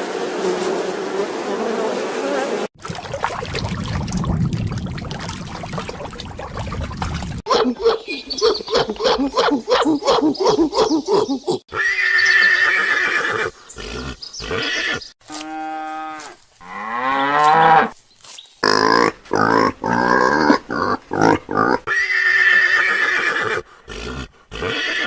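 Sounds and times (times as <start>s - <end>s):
horses neighing: 10.4s - 15.0s, 18.6s - 25.0s.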